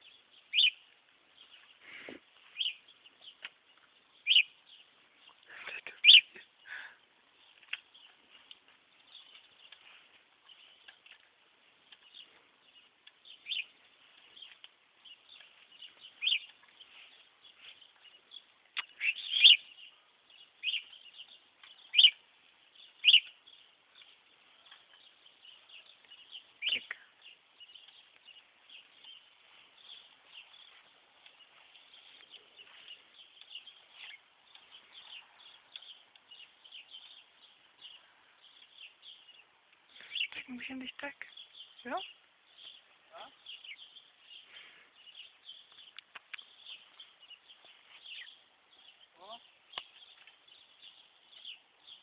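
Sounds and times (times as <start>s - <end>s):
sharp budgerigar chirps: 0.5s - 0.8s, 4.2s - 4.5s, 6.0s - 6.4s, 18.8s - 19.8s, 21.9s - 22.2s, 23.0s - 23.3s.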